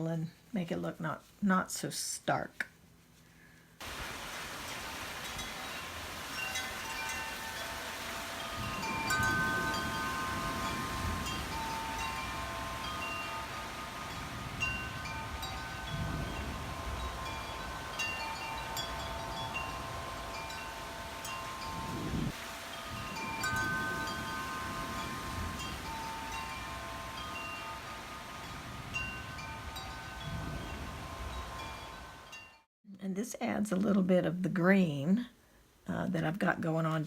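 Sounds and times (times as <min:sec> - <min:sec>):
wind rumble on microphone: 0:03.9 - 0:32.3
wind chimes ringing: 0:04.7 - 0:32.7.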